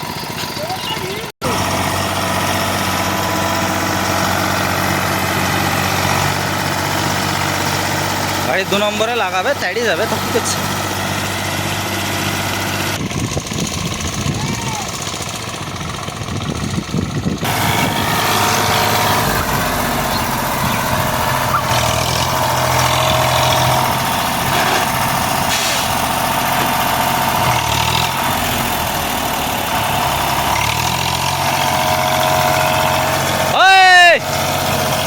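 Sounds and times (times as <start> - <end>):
tractor diesel engine under load: 0.0 - 35.0.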